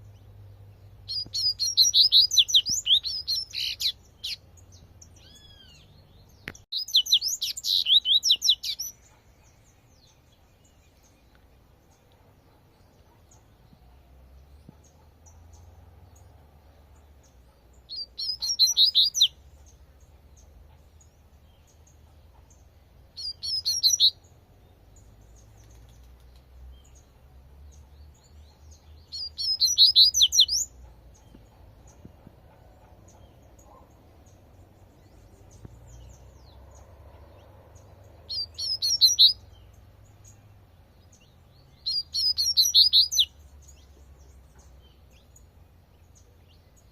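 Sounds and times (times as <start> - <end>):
bird high twittering song: 0.0 - 46.9
faint bird chirps: 0.0 - 46.9.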